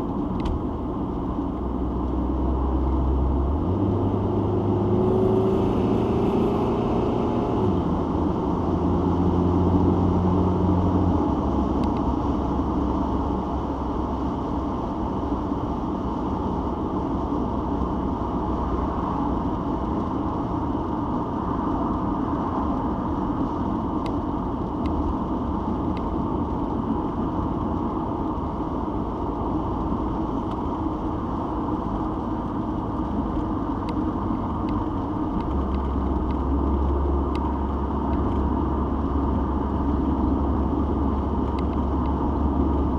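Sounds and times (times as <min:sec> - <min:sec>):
low engine hum: 0:00.0 - 0:42.9
road and tyre noise: 0:00.0 - 0:42.9.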